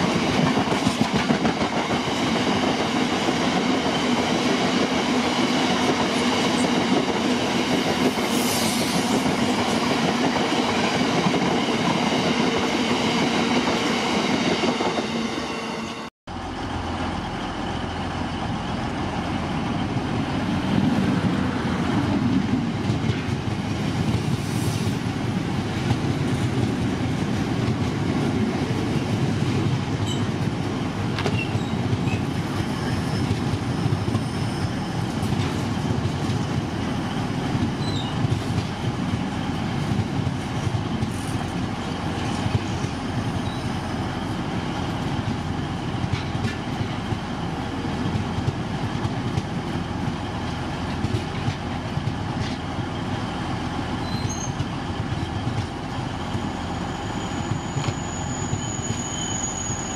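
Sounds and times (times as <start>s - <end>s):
train wheels rumbling on rail: 0.0s - 59.9s
faint high wheel squeals: 31.3s - 35.3s, 37.8s - 38.2s, 54.0s - 54.6s, 56.4s - 59.9s.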